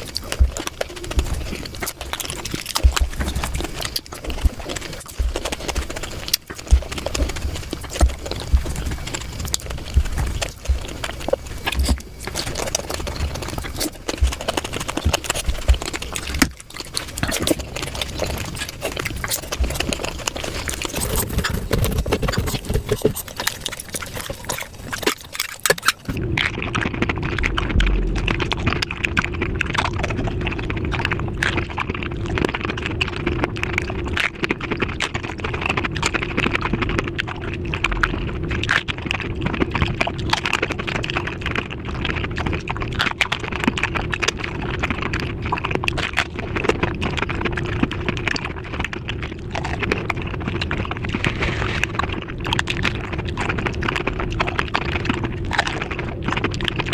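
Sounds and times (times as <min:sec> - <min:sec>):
steady hum: 0:00.0 - 0:32.0
crunching and chewing: 0:00.0 - 0:56.9.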